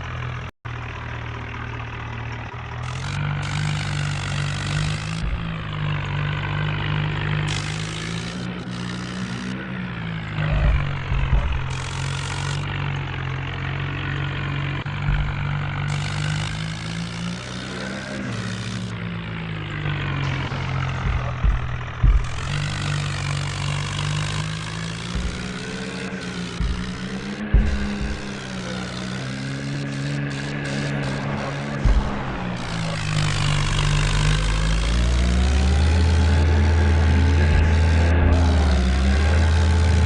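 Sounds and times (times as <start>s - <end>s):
tractor engine running: 0.0s - 40.0s
short low thumps: 3.8s - 6.5s, 10.4s - 12.8s, 14.8s - 16.9s, 19.9s - 28.9s, 30.3s - 36.6s, 37.2s - 39.1s.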